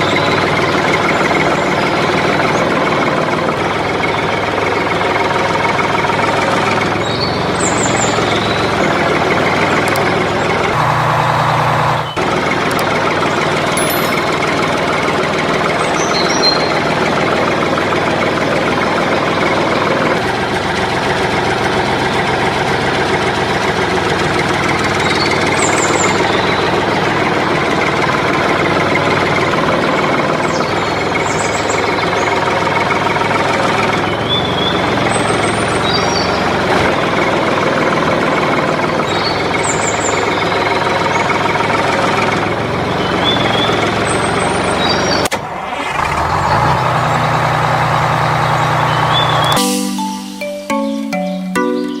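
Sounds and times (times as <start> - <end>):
tractor engine running: 0.0 - 51.9
short high chirps: 13.8 - 14.5, 48.8 - 52.0.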